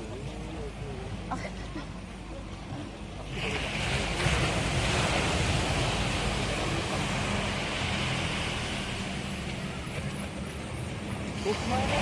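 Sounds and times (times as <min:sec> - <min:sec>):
ocean surf breaking: 0:03.2 - 0:12.0.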